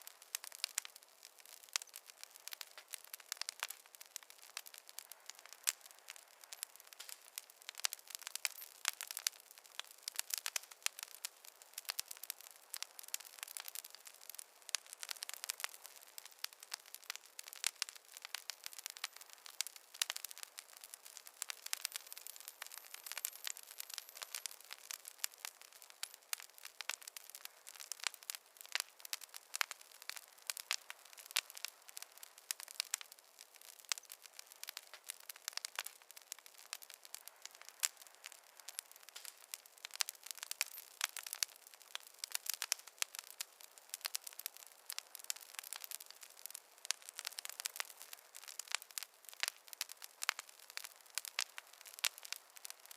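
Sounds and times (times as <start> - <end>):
campfire crackling: 0.0 - 52.9.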